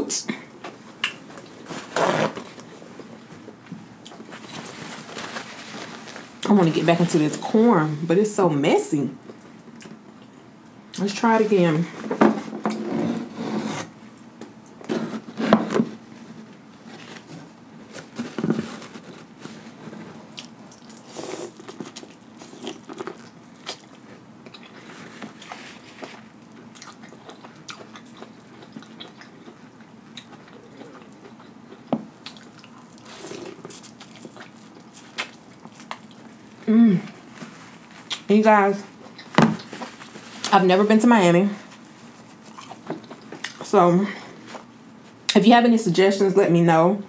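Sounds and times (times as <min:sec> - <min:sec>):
biting and chewing corn: 0:18.0 - 0:36.3.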